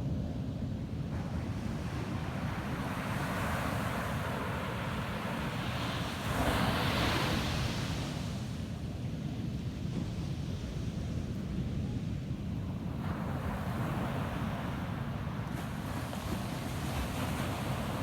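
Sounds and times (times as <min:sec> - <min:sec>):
ocean surf breaking on beach: 0:13.6 - 0:18.0.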